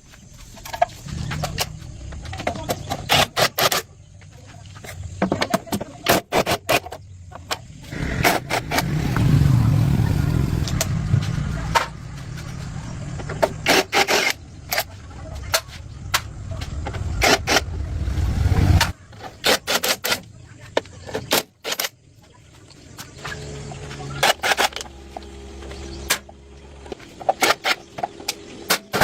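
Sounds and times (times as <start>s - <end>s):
engine low rumble: 7.1s - 13.7s, 14.4s - 19.2s, 22.6s - 28.6s.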